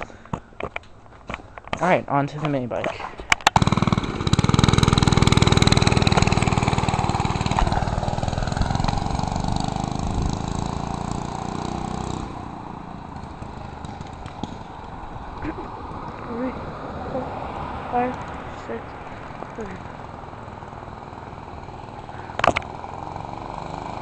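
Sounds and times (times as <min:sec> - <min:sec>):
sharp clicks: 0:03.3 - 0:03.6
minibike engine running fast: 0:03.6 - 0:24.0.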